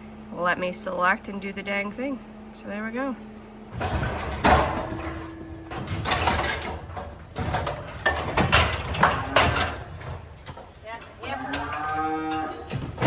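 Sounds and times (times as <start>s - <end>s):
metal gates clanking and banging: 3.7s - 13.0s.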